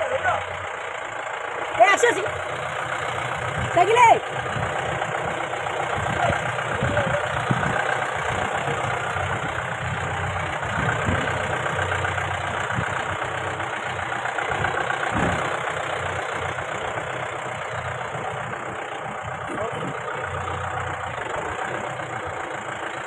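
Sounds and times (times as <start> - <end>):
car engine running: 0.0 - 23.0
low thuds: 14.6 - 15.6.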